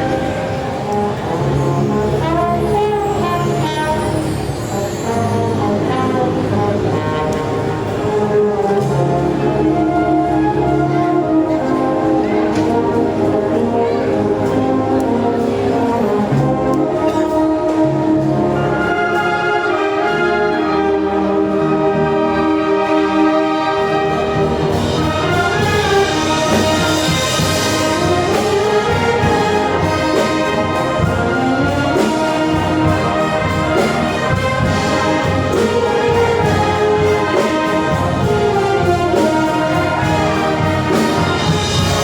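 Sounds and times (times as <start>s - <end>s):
brass band playing: 0.0s - 42.0s
percussion beat: 24.4s - 42.0s.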